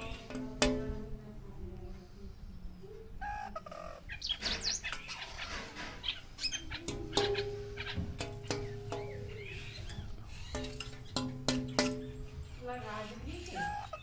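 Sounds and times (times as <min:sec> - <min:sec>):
birds quick sweeping chirps: 0:03.2 - 0:14.0.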